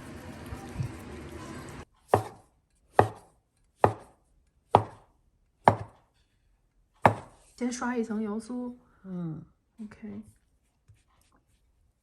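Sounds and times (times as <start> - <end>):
knife chopping on kitchen board: 2.0 - 6.1, 7.0 - 7.4.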